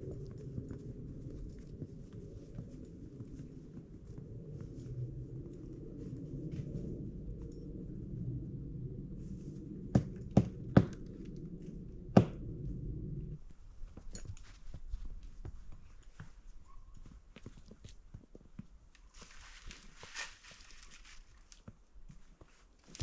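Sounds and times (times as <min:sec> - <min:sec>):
faint ticks and crunches: 0:00.0 - 0:07.7, 0:14.0 - 0:23.0
low rumble: 0:00.0 - 0:13.4.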